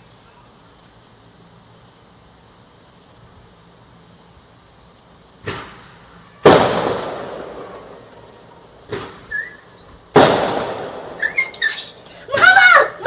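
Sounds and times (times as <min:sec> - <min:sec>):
fireworks banging: 0:05.3 - 0:12.6.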